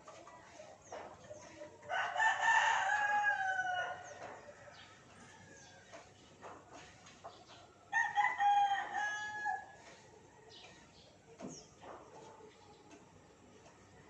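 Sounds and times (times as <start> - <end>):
rooster crowing: 1.9 - 4.2, 7.9 - 9.8.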